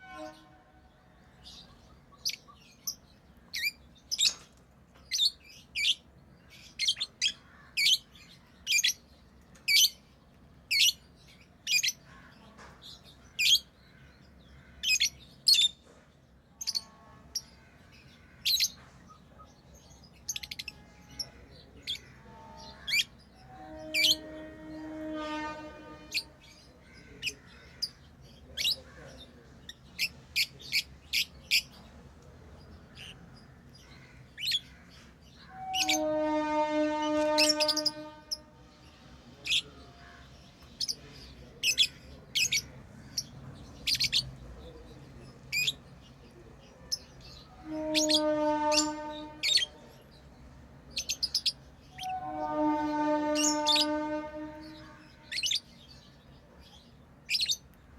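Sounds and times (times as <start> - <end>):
horn-like buzzing tone: 0.0 - 0.8, 23.5 - 26.4, 35.6 - 38.7, 47.6 - 49.8, 52.0 - 55.0.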